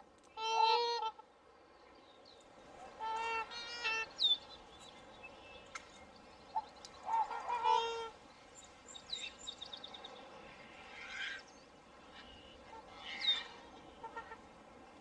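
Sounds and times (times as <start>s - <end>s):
faint outdoor background noise: 0.0s - 15.0s
birds calling: 3.0s - 14.5s.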